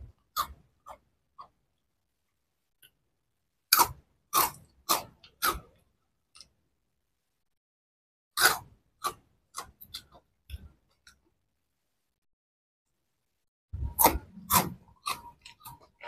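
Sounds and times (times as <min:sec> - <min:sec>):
crunching snack sticks: 0:03.7 - 0:06.6, 0:13.9 - 0:16.0.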